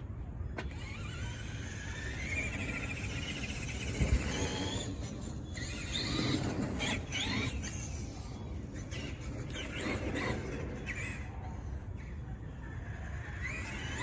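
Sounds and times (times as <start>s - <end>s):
electric motor whining: 0.6s - 10.5s.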